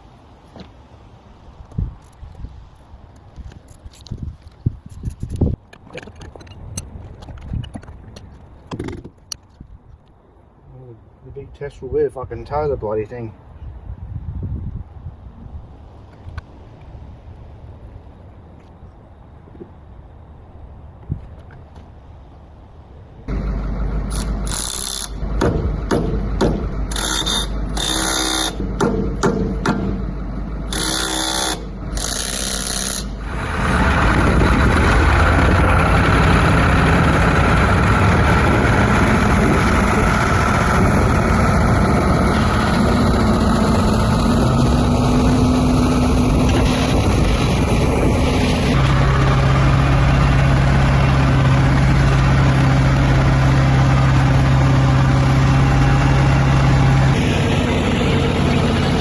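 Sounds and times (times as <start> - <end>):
tractor engine under load: 23.3 - 59.0.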